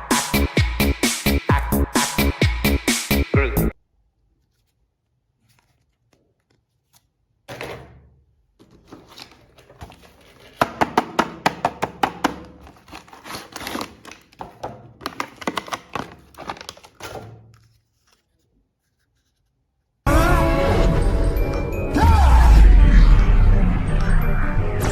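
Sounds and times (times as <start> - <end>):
plastic toys clicking and knocking: 10.0 - 17.5.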